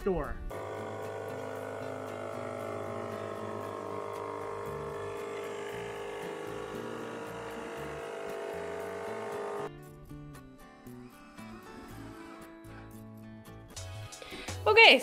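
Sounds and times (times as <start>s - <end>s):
jigsaw cutting wood: 0.5s - 9.7s.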